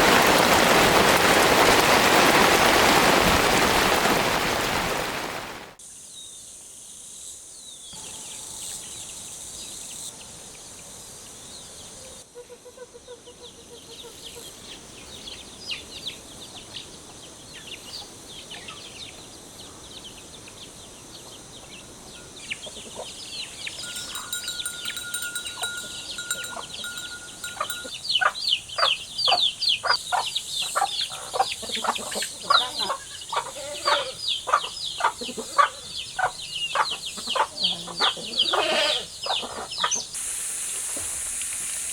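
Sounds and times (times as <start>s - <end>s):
chickens chirping and clucking: 19.9s - 40.2s.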